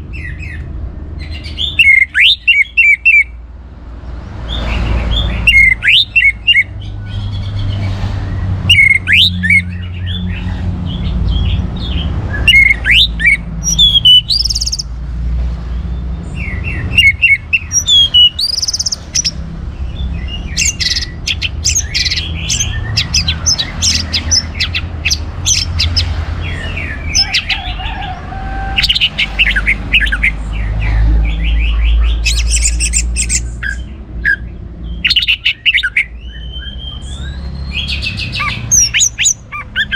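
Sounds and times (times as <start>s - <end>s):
thrush singing: 4.5s - 7.8s, 11.1s - 14.9s, 16.3s - 39.9s.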